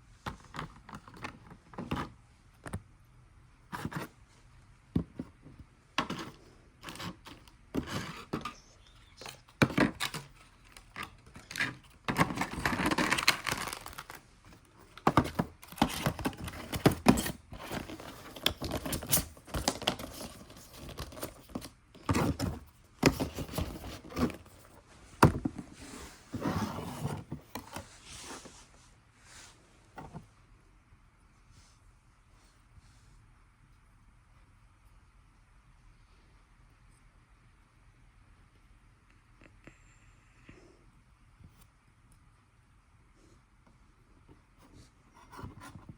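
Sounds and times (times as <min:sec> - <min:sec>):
plastic and paper crinkling: 0:06.1 - 0:24.8.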